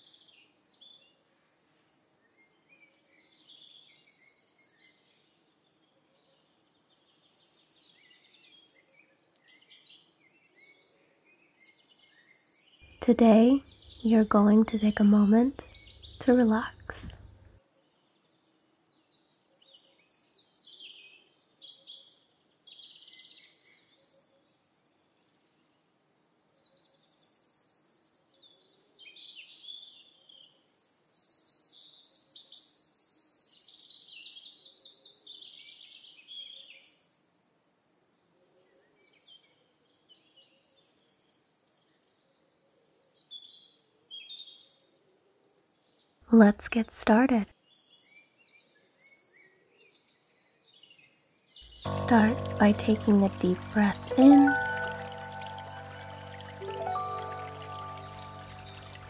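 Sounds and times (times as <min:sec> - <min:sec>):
songbird singing: 0:12.9 - 0:17.5, 0:51.7 - 0:59.0.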